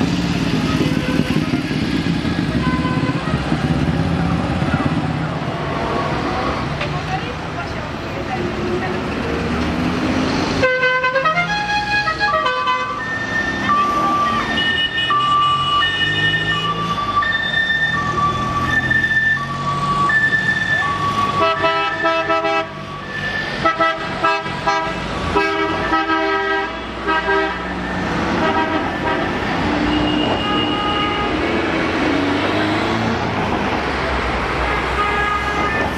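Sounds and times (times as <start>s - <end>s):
car horns sounding: 2.6s - 3.4s, 10.6s - 17.1s, 20.3s - 22.8s, 23.4s - 32.0s, 34.6s - 35.9s.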